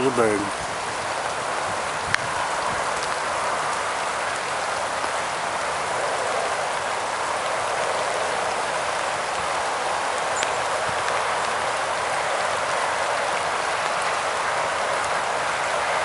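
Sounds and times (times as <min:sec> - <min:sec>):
pouring rain: 0:00.0 - 0:16.0.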